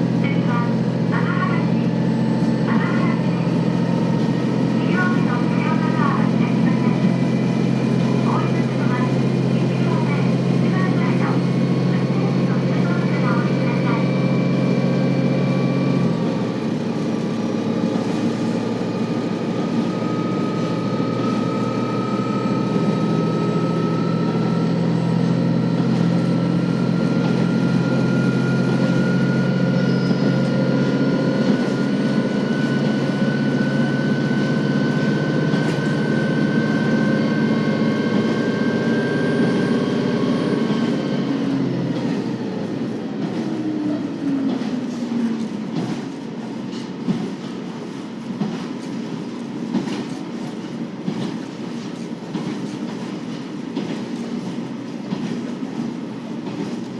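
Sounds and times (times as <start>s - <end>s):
diesel railcar engine droning: 0.0s - 56.9s.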